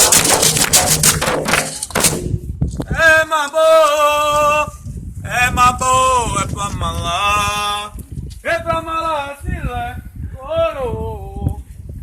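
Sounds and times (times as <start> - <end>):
fast percussion playing: 0.0 - 2.6.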